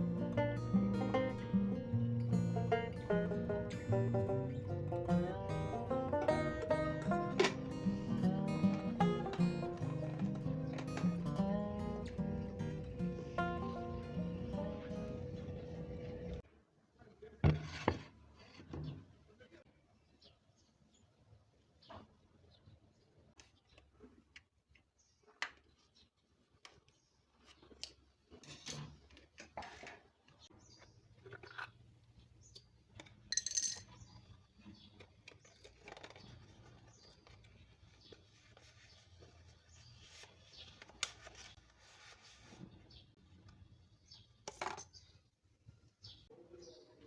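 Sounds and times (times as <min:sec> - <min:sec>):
small hard objects clinking: 0:33.2 - 0:34.2.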